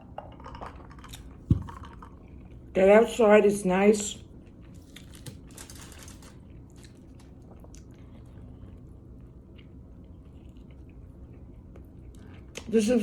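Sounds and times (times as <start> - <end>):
person chewing food: 4.2 - 12.7.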